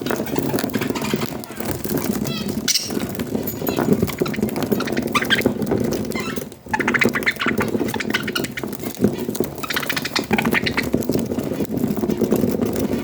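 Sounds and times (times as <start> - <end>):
budgerigars chattering: 2.3 - 3.1, 3.7 - 5.4, 6.2 - 8.7, 9.6 - 10.9.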